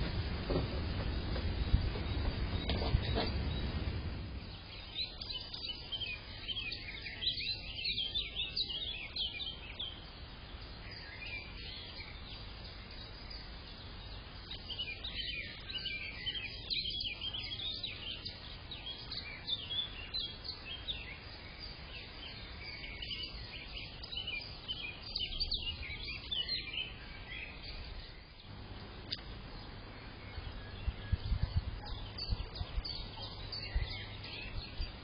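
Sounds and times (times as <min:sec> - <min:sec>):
low background rumble: 0:00.0 - 0:05.4
small birds chirping: 0:00.0 - 0:35.0.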